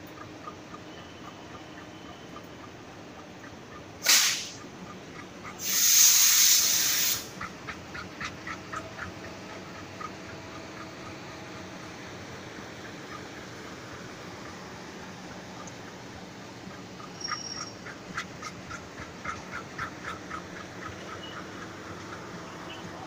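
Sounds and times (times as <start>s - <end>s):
train coaches rumbling past: 0.0s - 23.0s
loud hiss: 4.0s - 4.6s, 5.6s - 7.4s.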